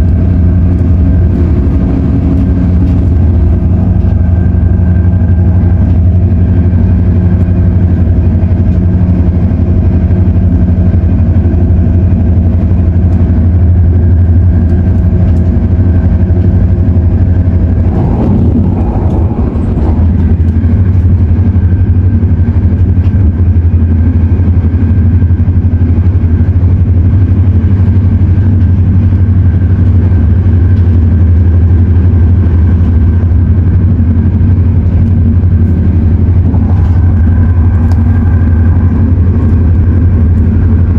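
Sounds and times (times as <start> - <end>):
whining tones: 0.0 - 9.0, 15.6 - 23.0, 34.1 - 40.9
train running hum: 0.0 - 40.9.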